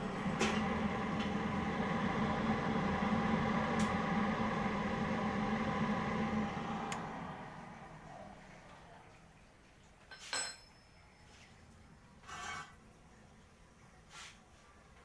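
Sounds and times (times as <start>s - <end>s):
electric fan motor humming: 0.0s - 8.8s.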